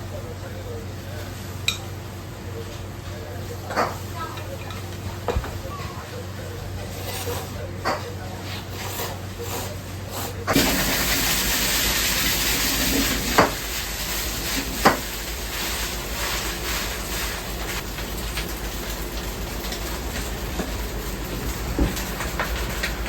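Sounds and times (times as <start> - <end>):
food sizzling in a wok: 8.8 - 23.0.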